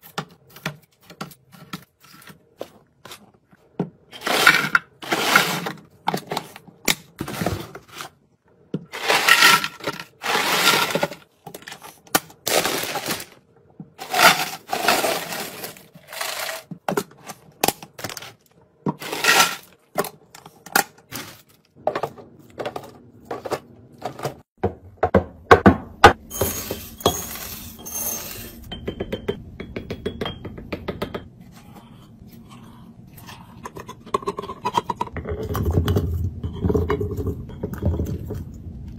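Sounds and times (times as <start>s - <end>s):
food packaging clattering and rustling: 4.2s - 8.2s, 8.9s - 13.4s, 14.0s - 24.5s.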